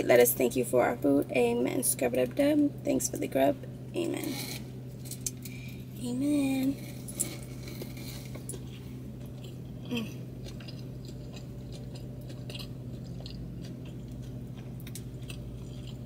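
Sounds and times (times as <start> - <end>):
low hum: 0.0 - 16.0
person chewing food: 7.2 - 16.0.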